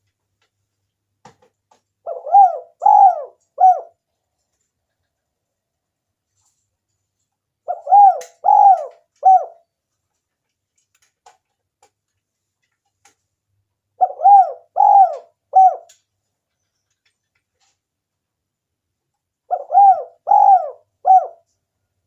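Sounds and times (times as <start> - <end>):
dove cooing: 2.0 - 4.0, 7.6 - 9.6, 14.0 - 16.0, 19.5 - 21.5.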